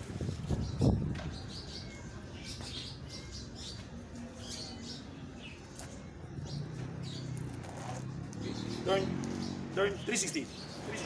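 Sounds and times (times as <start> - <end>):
small birds chirping: 0.1 - 11.0.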